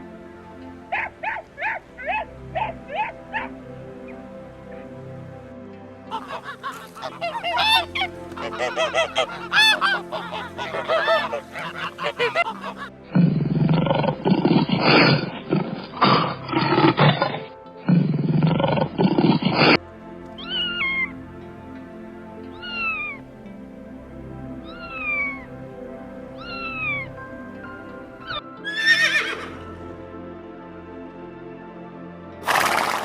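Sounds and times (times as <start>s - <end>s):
faint background music: 0.0s - 33.0s
duck quacking: 0.9s - 3.6s, 6.1s - 12.9s.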